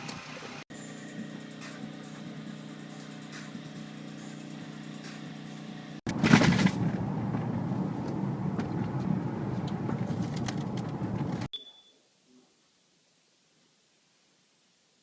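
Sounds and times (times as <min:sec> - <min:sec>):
car engine hum: 0:00.0 - 0:11.5.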